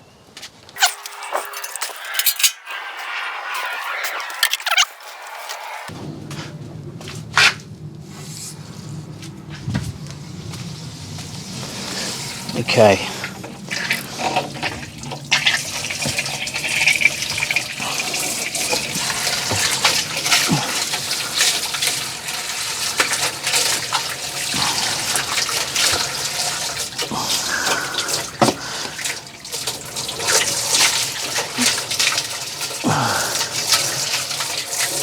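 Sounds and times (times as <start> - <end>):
hose water splashing into drum: 11.2 - 35.0.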